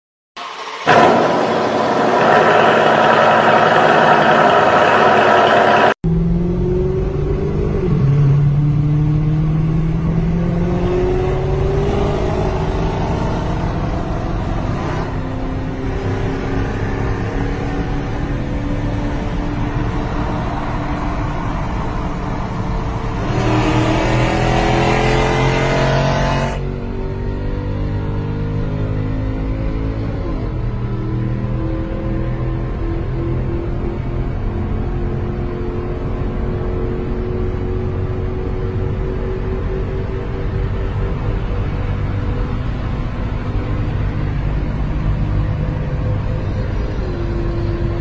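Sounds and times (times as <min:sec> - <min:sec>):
loud intro sound: 0:00.4 - 0:06.0
car engine accelerating: 0:00.4 - 0:48.0.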